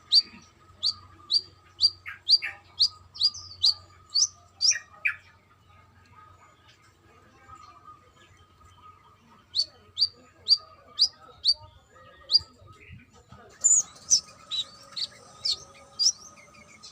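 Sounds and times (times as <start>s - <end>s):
bird sharp chirps: 0.0s - 5.2s, 9.5s - 11.6s, 13.6s - 16.9s.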